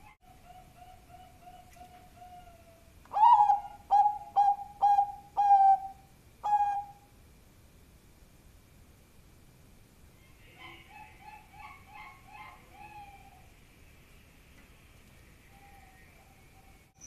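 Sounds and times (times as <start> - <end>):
dove cooing: 0.0 - 7.0, 10.4 - 13.5.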